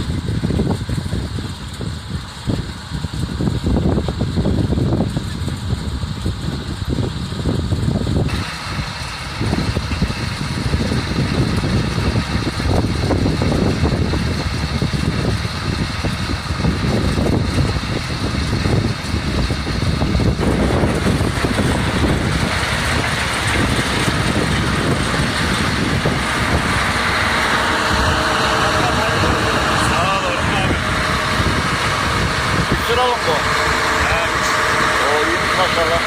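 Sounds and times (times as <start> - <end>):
tractor engine rumbling: 0.0 - 36.0.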